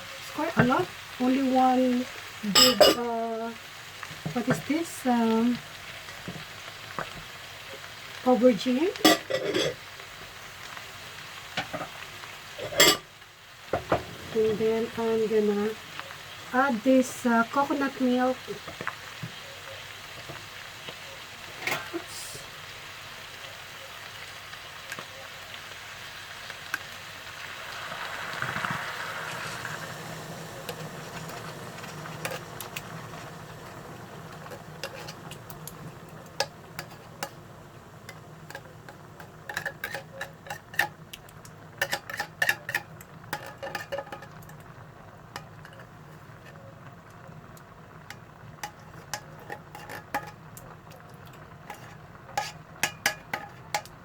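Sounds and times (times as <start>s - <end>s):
vegetables sizzling in a pot: 0.0s - 54.0s
spoon clinking against pot: 38.1s - 40.9s, 41.8s - 44.6s, 48.6s - 50.4s, 51.7s - 53.9s.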